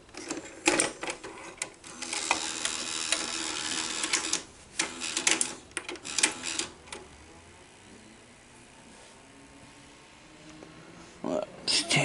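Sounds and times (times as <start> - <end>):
mechanical clicks and clunks: 0.0 - 7.1
tape loading mechanism whirring: 0.1 - 7.1.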